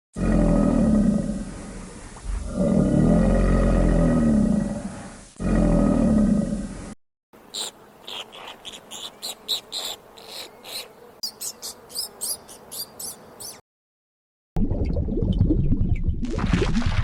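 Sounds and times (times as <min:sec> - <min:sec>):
small animal high-pitched calls: 0:07.5 - 0:13.6.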